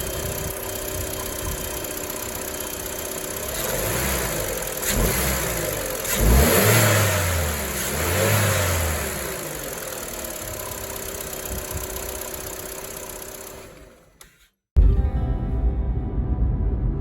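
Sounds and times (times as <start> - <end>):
car engine revving and idling: 0.0 - 14.0.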